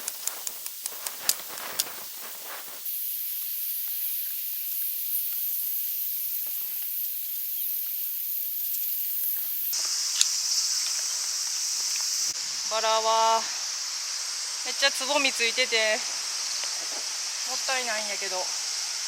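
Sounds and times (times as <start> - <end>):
faint rustles and clicks: 0.0 - 2.8
insects shrilling: 0.0 - 19.0
low-pitched insect drone: 0.0 - 19.0.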